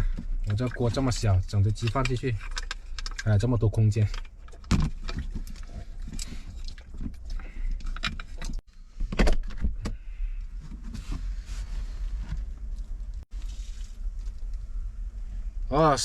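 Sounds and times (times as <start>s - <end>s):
steady low rumble: 10.0s - 16.0s.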